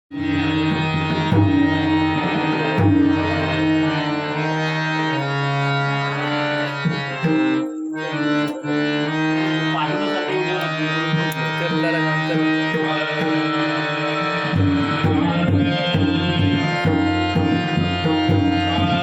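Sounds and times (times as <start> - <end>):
harmonium melody: 0.0 - 19.0
hand drum strokes: 14.5 - 19.0.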